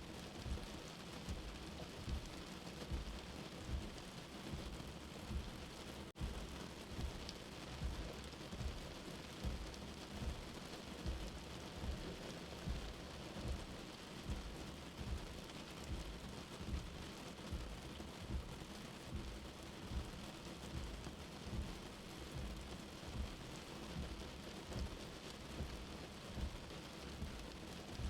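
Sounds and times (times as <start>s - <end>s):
steady rain: 0.0s - 28.0s
soft low heartbeat thudding: 0.1s - 28.0s.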